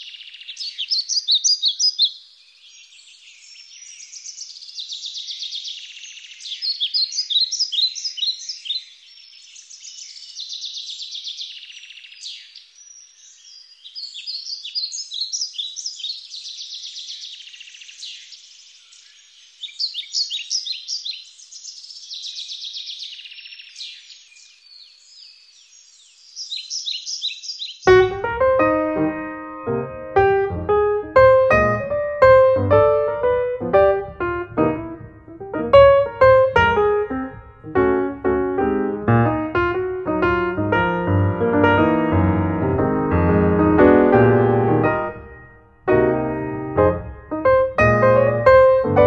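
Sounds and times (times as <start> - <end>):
songbirds singing: 0.0 - 28.1.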